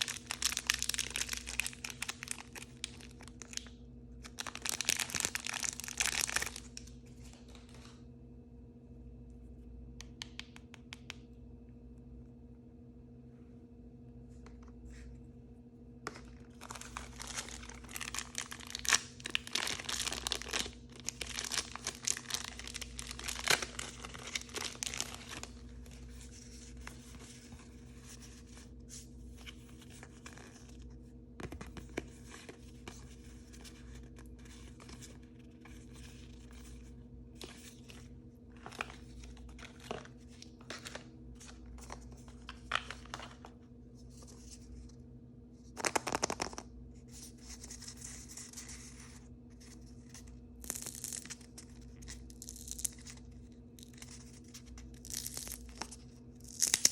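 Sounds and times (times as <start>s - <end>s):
plastic packaging tearing and crinkling: 0.0s - 7.8s, 16.4s - 27.3s, 37.4s - 43.4s, 50.1s - 56.9s.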